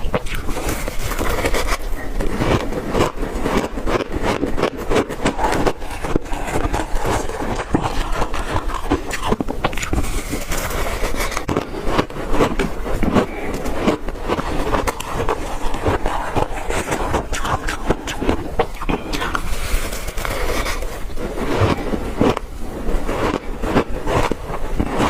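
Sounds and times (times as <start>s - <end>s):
ice being chewed: 0.0s - 25.0s.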